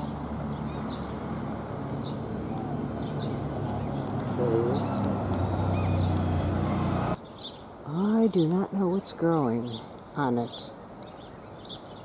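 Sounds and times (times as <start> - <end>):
small birds chirping: 0.0 - 12.0
low bird call: 2.0 - 7.6.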